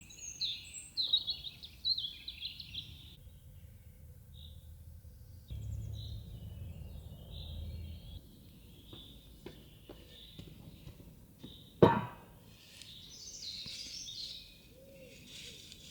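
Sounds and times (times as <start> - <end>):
small birds chirping: 0.0 - 11.8, 12.5 - 15.9
low rumble: 4.5 - 8.2.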